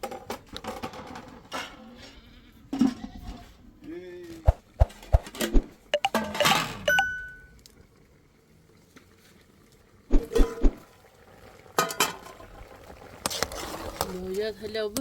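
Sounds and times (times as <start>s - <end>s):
dishes clinking: 6.0s - 7.5s.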